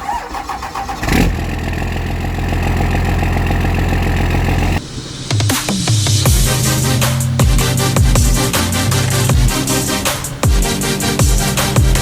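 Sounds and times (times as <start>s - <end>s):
electronic music with heavy beat: 5.2s - 12.0s
vehicle engine revving high: 5.7s - 12.0s.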